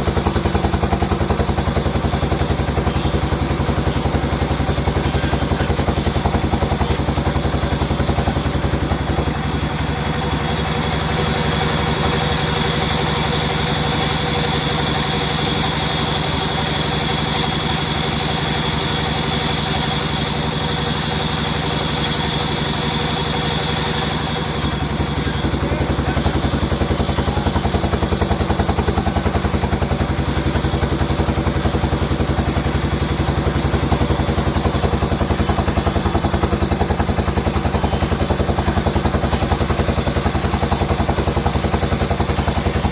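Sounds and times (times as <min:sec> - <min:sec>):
sawmill machinery running: 0:00.0 - 0:42.9.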